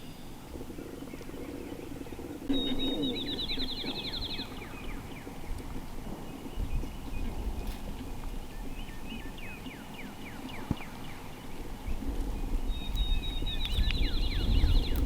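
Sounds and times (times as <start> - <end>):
wind rumble on microphone: 0.0 - 15.0
songbird whistling: 2.5 - 5.3.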